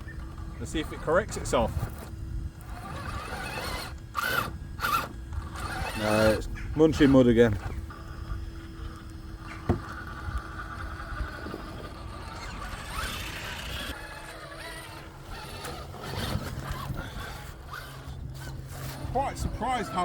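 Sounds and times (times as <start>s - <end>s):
rc car motor whining: 0.0s - 20.0s
wheels churning in mud: 0.0s - 20.0s.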